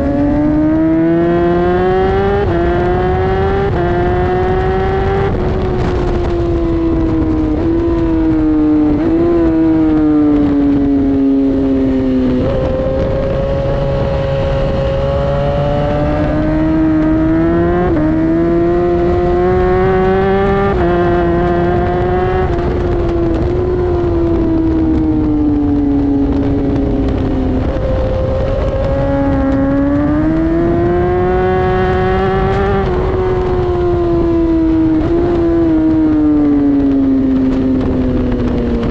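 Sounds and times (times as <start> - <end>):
motorcycle engine at full throttle: 0.0 - 38.9
wind and road rush: 0.0 - 38.9.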